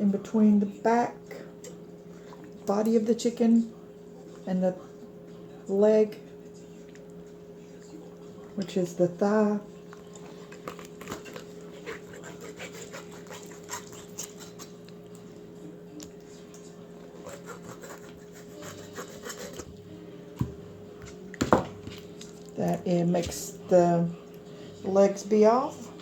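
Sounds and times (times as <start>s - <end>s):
low appliance hum: 0.0s - 26.0s
knife cutting raw chicken: 10.7s - 14.8s, 17.2s - 19.7s.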